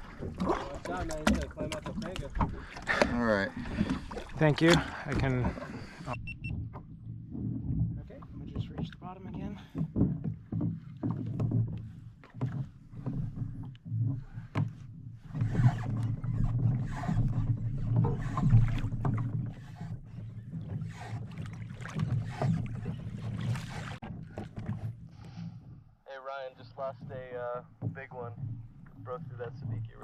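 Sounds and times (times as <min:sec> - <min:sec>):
water lapping against hull: 0:00.0 - 0:30.0.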